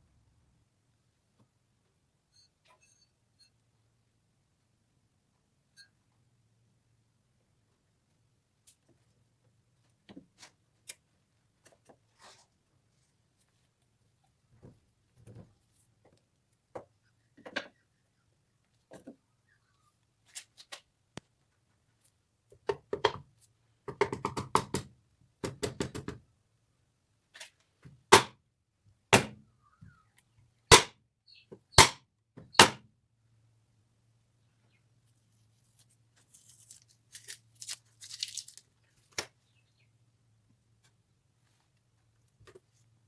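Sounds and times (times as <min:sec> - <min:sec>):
loud single knocks: 0:28.1 - 0:28.3, 0:29.2 - 0:29.4, 0:30.7 - 0:30.9, 0:31.8 - 0:32.8.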